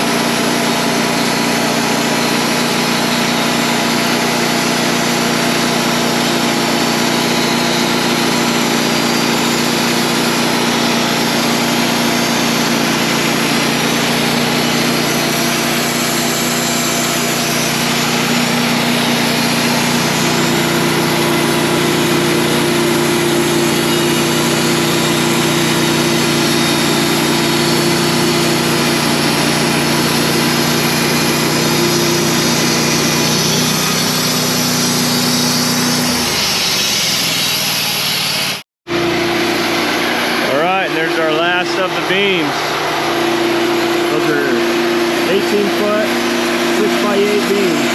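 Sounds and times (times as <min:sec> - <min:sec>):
sawmill engine running: 0:00.0 - 0:47.9.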